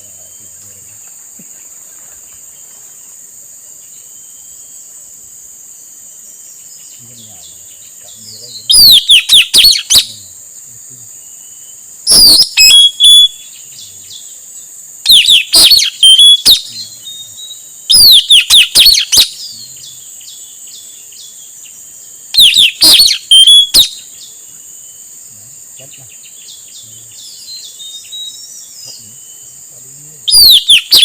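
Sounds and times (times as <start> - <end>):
steady high hiss: 0.0 - 31.0
parrot screeching: 12.2 - 13.3, 15.1 - 16.6, 17.9 - 19.3, 22.4 - 23.9, 30.3 - 31.0.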